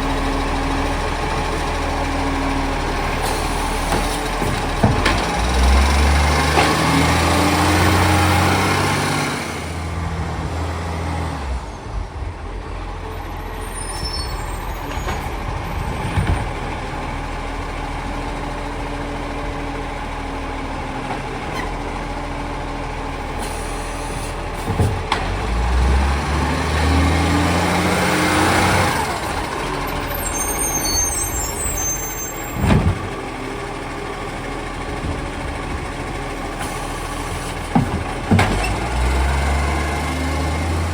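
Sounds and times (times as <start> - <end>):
diesel engine revving: 0.0 - 40.9
bins knocking against truck: 3.8 - 5.8, 32.5 - 33.2, 36.6 - 39.0.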